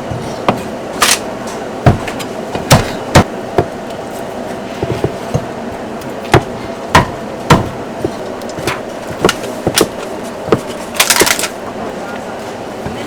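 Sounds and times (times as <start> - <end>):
cleaver chopping meat on board: 6.3 - 10.7.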